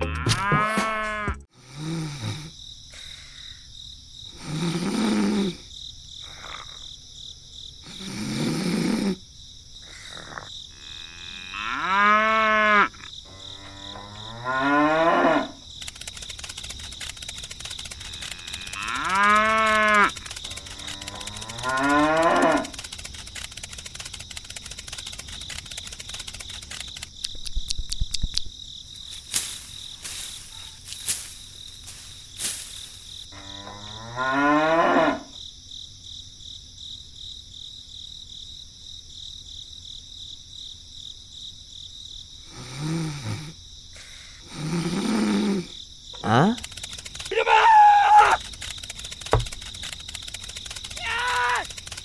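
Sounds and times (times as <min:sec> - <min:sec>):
cattle mooing: 0:00.0 - 0:01.4, 0:18.4 - 0:22.8
insects chirring: 0:00.0 - 0:52.0.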